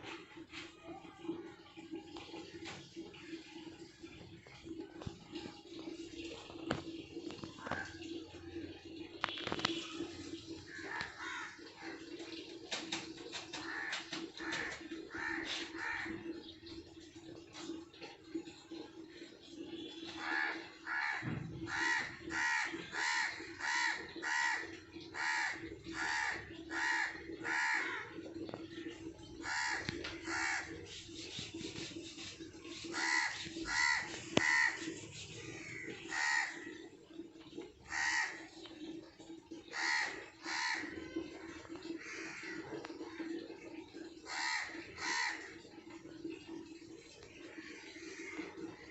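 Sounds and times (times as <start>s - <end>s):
crows cawing: 10.7s - 12.2s, 13.6s - 16.3s, 20.2s - 28.2s, 29.4s - 30.7s, 32.9s - 36.8s, 37.9s - 38.4s, 39.7s - 40.9s, 44.3s - 45.5s.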